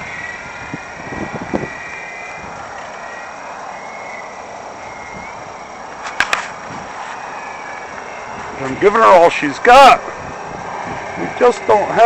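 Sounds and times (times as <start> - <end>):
model plane motor whining: 0.0 - 12.0
wind noise: 0.0 - 12.0.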